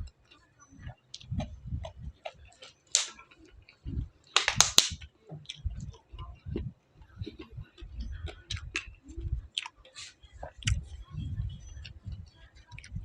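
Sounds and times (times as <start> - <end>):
chewing and lip smacking: 0.0 - 13.0.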